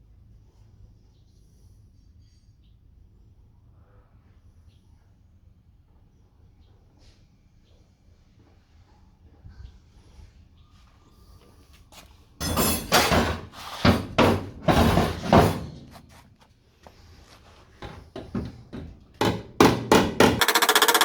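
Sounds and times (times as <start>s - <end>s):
hammer ringing on steel panel: 12.4s - 13.3s
power tool running: 20.3s - 21.0s.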